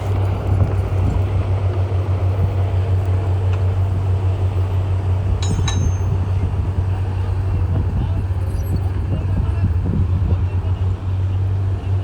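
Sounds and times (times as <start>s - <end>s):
metallic clink: 5.4s - 6.4s.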